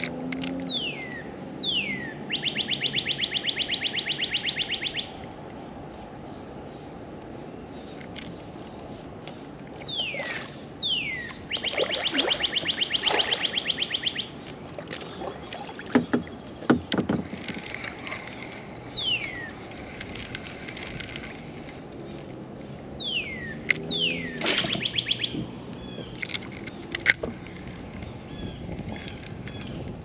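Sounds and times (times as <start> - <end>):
bird fast trill: 9.9 - 14.4, 23.0 - 26.2
sharp knocks: 15.9 - 17.4
bird falling whistles: 24.3 - 25.4.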